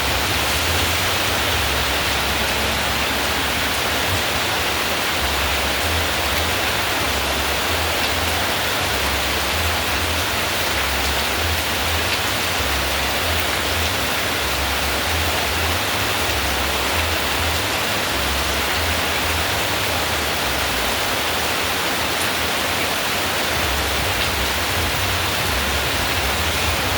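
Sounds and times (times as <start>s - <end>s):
heavy rain: 0.0s - 26.9s.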